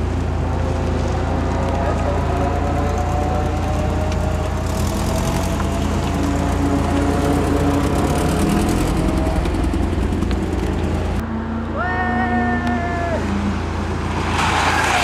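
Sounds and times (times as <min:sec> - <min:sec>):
car engine pulling away: 0:00.0 - 0:11.2.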